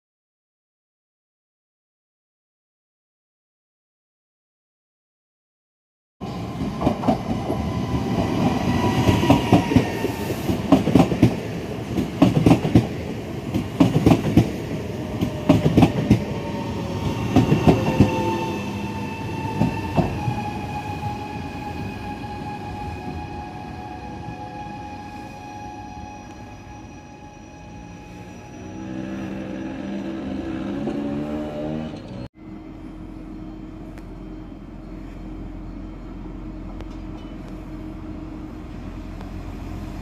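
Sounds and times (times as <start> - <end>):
train wheels clacking over joints: 13.5 - 14.5, 15.2 - 16.3.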